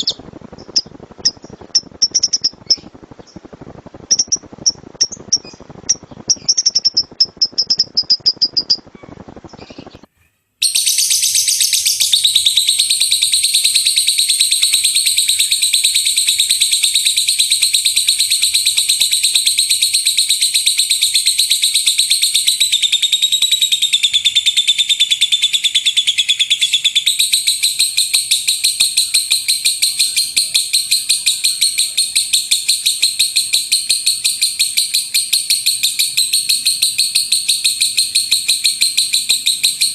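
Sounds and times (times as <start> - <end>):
lovebird chirping: 0.0 - 3.5, 4.1 - 39.9
lovebird fast trilling call: 10.6 - 39.9.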